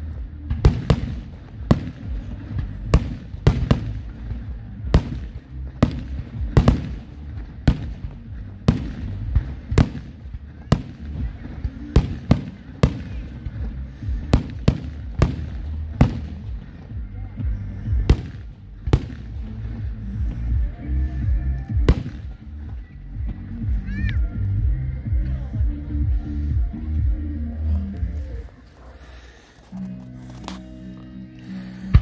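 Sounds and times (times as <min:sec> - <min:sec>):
continuous low rumble: 0:00.0 - 0:32.0
fireworks bursting with sharp bangs: 0:00.2 - 0:17.0, 0:17.8 - 0:20.7, 0:21.7 - 0:22.6.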